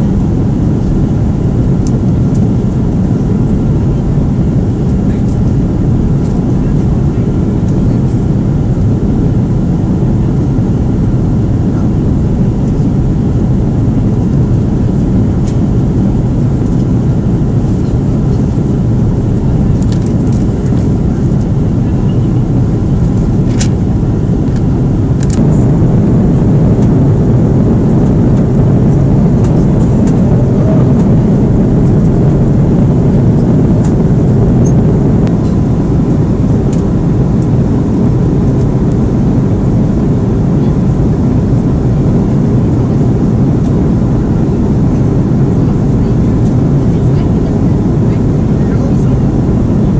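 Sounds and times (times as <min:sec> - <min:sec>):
jet engine roar in cabin: 0:00.0 - 0:49.9.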